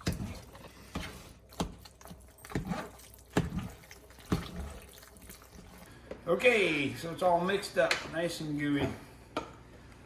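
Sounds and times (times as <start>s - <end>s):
spoon stirring thick food: 0.0s - 5.9s.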